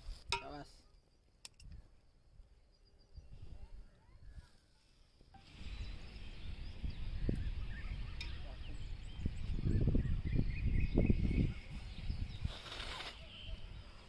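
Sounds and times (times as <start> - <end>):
birds chirping: 5.4 - 14.0.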